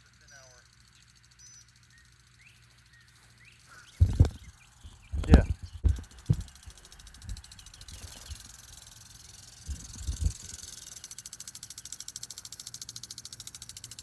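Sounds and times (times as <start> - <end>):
garden sprinkler hissing and ticking: 0.0 - 14.0
dull low thumps: 4.0 - 8.4, 9.7 - 10.6.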